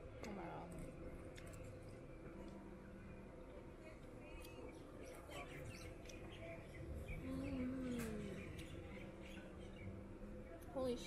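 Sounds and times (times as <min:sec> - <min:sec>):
small birds chirping: 0:04.3 - 0:11.0.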